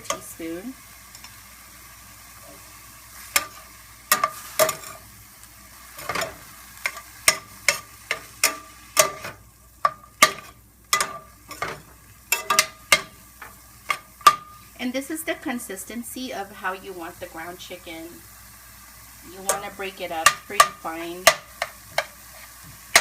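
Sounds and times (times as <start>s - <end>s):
meat sizzling in a skillet: 0.0s - 23.0s
utensil scraping and tapping pan: 6.0s - 14.5s, 20.2s - 23.0s.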